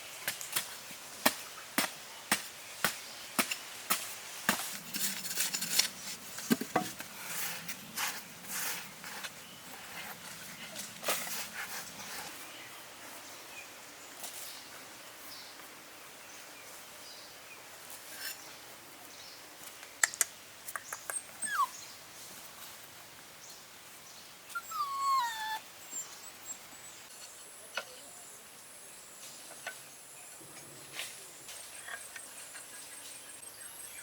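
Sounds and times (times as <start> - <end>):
puppy whining: 21.1 - 21.8, 24.6 - 26.8.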